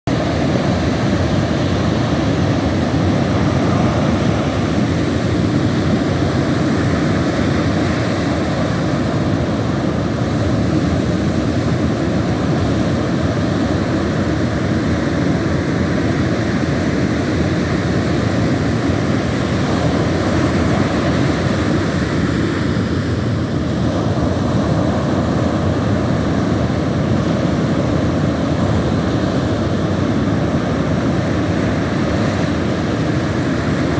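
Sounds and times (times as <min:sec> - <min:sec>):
ocean surf breaking: 0:00.1 - 0:33.9.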